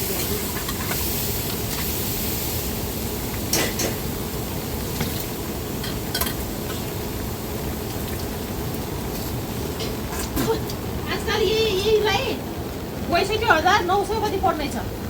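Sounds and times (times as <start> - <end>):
steady background noise: 0.0 - 15.0
dishes and utensils clinking: 3.5 - 4.0, 5.0 - 6.8.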